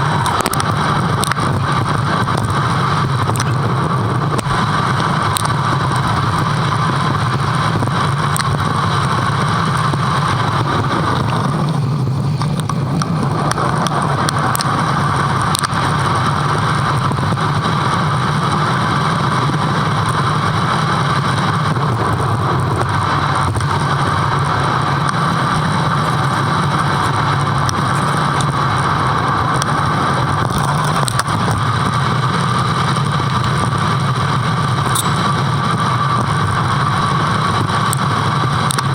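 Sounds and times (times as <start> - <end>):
bike running drone: 0.0 - 38.9.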